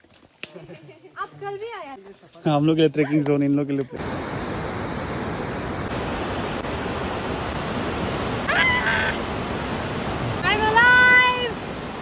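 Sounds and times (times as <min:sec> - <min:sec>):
steady rushing noise: 0:04.0 - 0:12.0.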